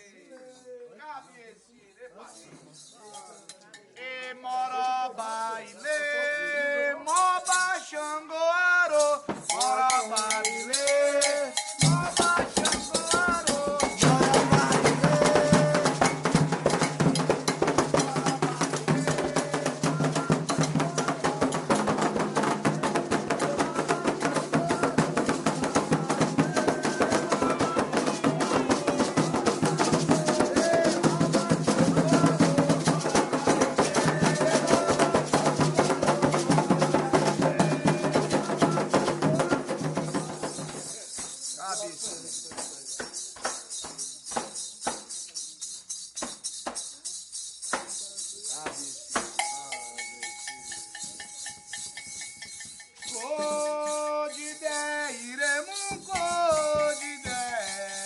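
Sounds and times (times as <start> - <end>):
shakers: 0.0 - 58.0
person chanting: 9.0 - 16.5, 17.7 - 40.5, 53.1 - 58.0
bell: 9.0 - 58.0
hand drums: 9.0 - 58.0.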